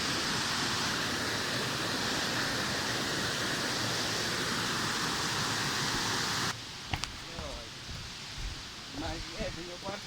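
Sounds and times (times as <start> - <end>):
waterfall rushing: 0.0 - 6.6.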